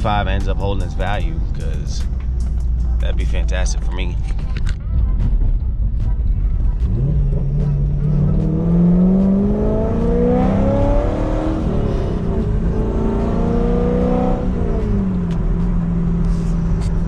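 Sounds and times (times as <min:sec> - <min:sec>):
car engine accelerating: 0:05.9 - 0:17.0.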